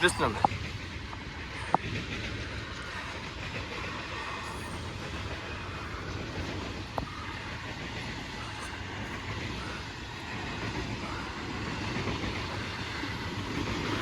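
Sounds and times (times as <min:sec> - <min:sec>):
sharp ringing wheel squeaks: 0:00.0 - 0:00.8
freight train wheels rumbling: 0:00.0 - 0:14.0.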